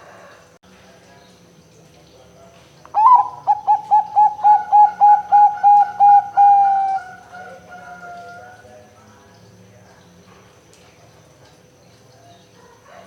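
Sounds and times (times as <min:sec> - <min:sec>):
dove cooing: 0:03.0 - 0:08.7.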